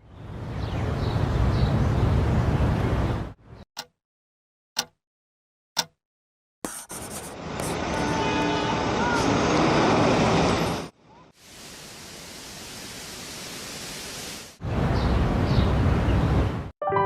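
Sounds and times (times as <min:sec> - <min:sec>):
steady rushing hiss: 0:11.4 - 0:14.6.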